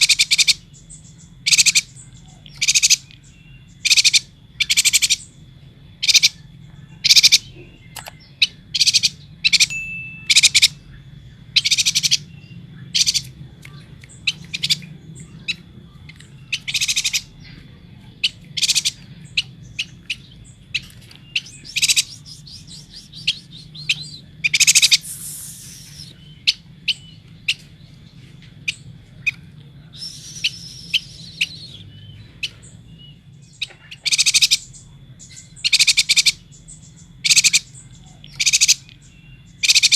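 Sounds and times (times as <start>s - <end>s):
bird chirping: 0.0s - 39.9s
faint steady high tone: 9.6s - 11.5s.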